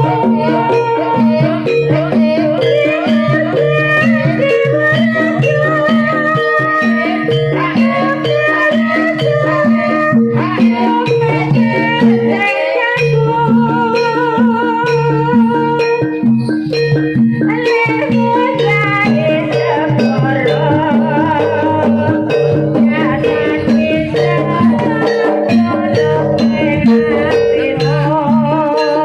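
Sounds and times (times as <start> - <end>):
sharp percussion strikes: 0.0 - 29.0
wavering high melody: 0.0 - 29.0
low pitched repeating notes: 18.8 - 29.0.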